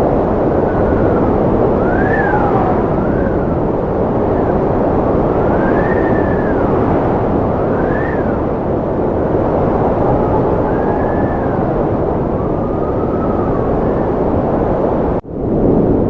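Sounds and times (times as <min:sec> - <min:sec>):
wind howling: 0:00.0 - 0:16.0.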